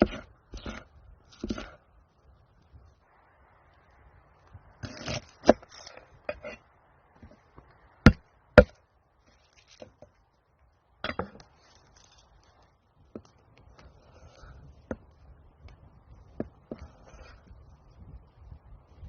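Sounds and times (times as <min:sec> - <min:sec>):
scraping and rustling: 0:04.7 - 0:07.7, 0:09.2 - 0:10.3, 0:11.0 - 0:15.1.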